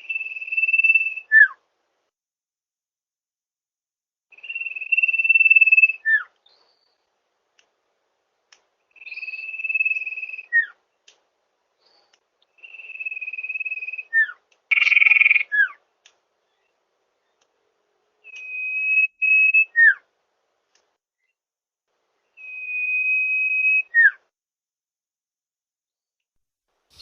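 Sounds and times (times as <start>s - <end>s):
bird high whistles: 4.3s - 6.3s, 12.6s - 15.7s.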